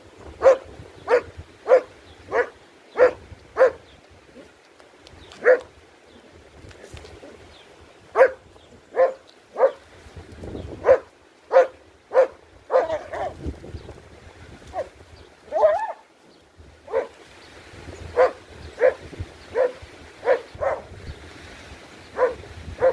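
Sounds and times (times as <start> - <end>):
dog barking: 0.4 - 3.8, 5.4 - 5.7, 8.2 - 9.8, 10.8 - 13.4, 15.5 - 16.0, 16.9 - 17.2, 18.2 - 20.9, 22.2 - 22.9
dog whining yelp: 15.5 - 16.0.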